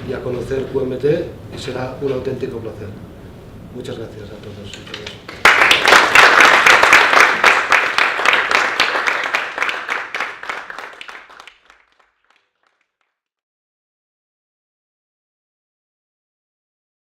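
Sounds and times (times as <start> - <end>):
audience applause: 5.3 - 12.8.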